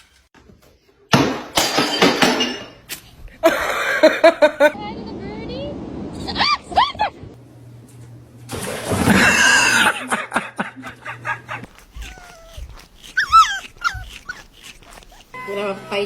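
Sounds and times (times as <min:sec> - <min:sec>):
dog yipping and whimpering: 0:11.7 - 0:16.0.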